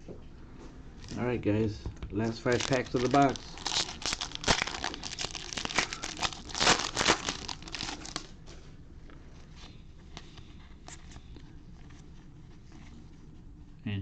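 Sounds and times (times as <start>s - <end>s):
foil wrapper tearing and crinkling: 2.2s - 8.4s.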